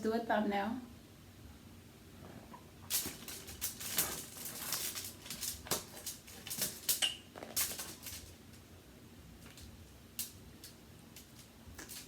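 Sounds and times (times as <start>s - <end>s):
rustling and crackling handling noise: 2.2s - 8.7s, 9.3s - 12.0s.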